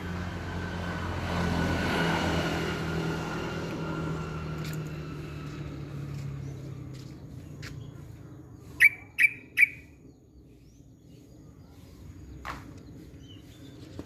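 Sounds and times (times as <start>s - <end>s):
engine hum passing: 0.0s - 10.6s
bird calls: 8.6s - 10.0s.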